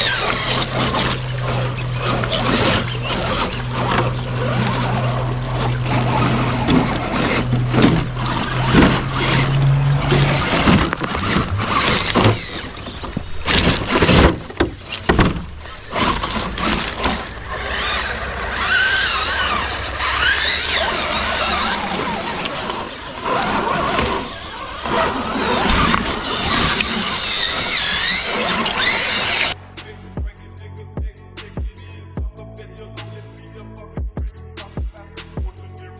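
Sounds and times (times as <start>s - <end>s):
electric motor whining: 0.0s - 30.0s
truck hitting the ground: 0.1s - 22.1s.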